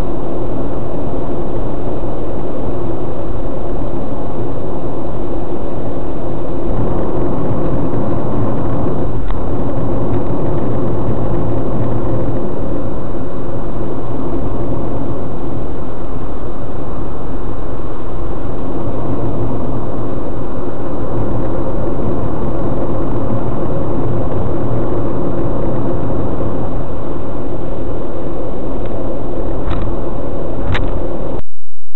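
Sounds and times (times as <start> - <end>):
car road and engine drone: 0.0 - 31.4.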